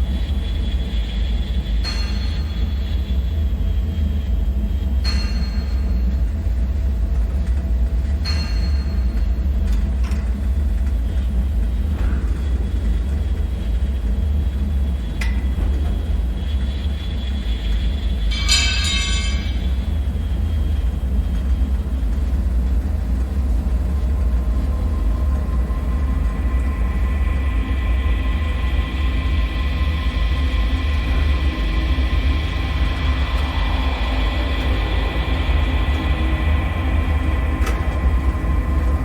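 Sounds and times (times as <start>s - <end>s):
deep low rumbling drone: 0.0s - 39.0s
metallic pings and clanks: 1.8s - 3.2s, 5.0s - 6.8s, 7.5s - 10.4s, 18.2s - 20.2s.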